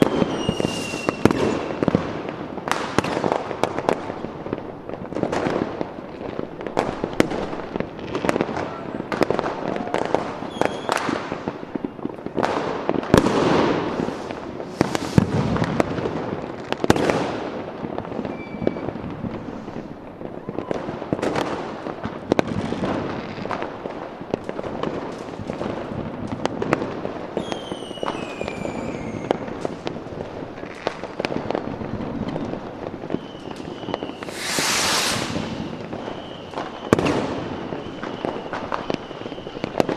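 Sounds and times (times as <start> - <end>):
falling fireworks whistles: 0.0 - 4.1, 5.1 - 17.3, 18.0 - 21.6, 27.3 - 29.9, 30.6 - 39.9
fireworks bangs and crackling: 0.0 - 39.9
loud hiss: 13.8 - 15.6, 34.1 - 36.5.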